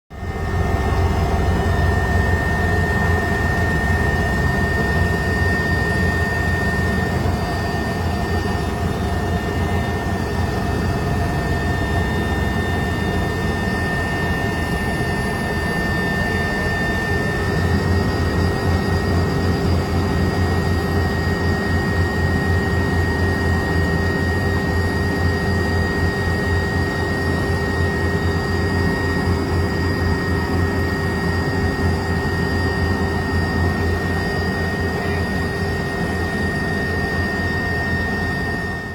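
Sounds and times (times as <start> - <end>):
helicopter rotor beat: 0.1 - 38.9
helicopter turbine whine: 0.1 - 38.9.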